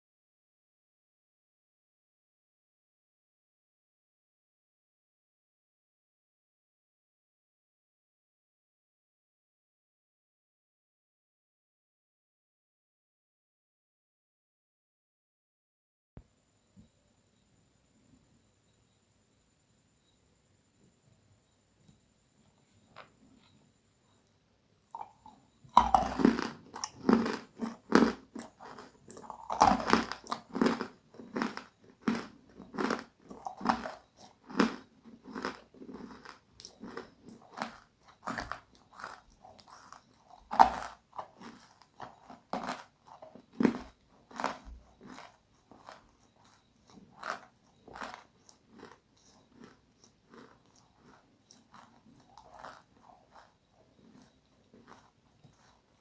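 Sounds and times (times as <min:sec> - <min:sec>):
chewing crunchy food: 0:24.2 - 0:56.0.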